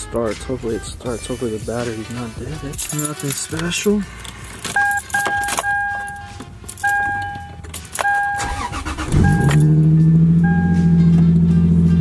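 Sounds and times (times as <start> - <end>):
keys jangling: 2.6 - 8.7
car engine starting and idling: 3.5 - 12.0
dashboard warning chime: 4.8 - 11.2.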